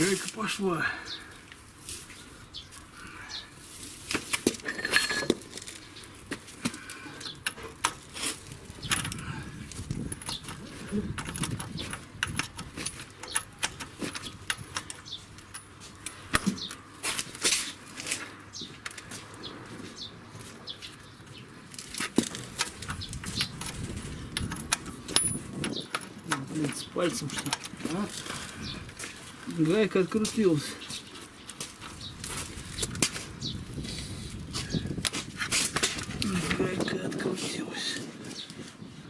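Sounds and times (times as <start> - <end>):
spanner loosening nut: 7.2 - 16.6, 22.0 - 28.5
metallic clicks and clinks: 8.8 - 16.5.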